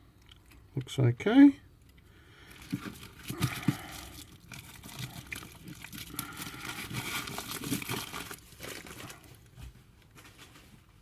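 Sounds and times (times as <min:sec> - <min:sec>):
packaging rustling: 0:02.4 - 0:11.0.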